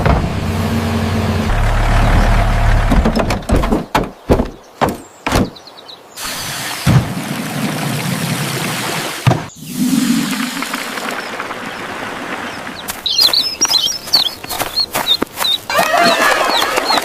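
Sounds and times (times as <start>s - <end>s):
vehicle engine sputtering out: 0.0s - 3.5s.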